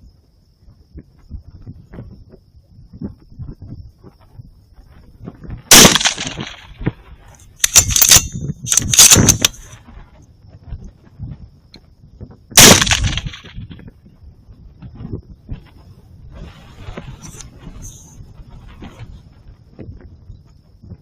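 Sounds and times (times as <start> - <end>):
rifle bolt clicks and rattles: 5.7 - 6.6, 7.4 - 9.8
rifle shots: 5.7 - 6.9, 7.6 - 9.8, 12.6 - 13.7.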